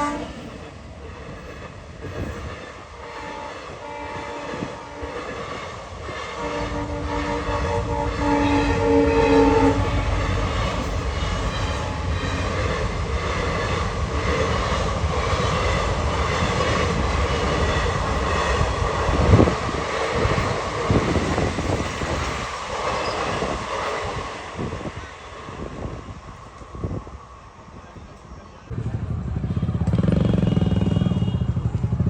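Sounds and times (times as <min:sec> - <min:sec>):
train horn: 0:00.0 - 0:00.5, 0:02.6 - 0:12.9, 0:29.4 - 0:32.0
train rumble: 0:00.0 - 0:32.0.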